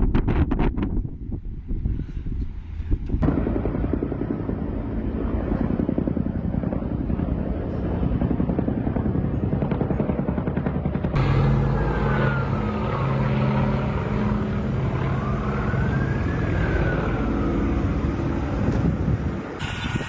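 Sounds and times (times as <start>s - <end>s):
loud steady rumble: 0.0s - 20.0s
helicopter rotor pulsing: 2.7s - 20.0s
emergency vehicle siren wailing: 11.2s - 20.0s.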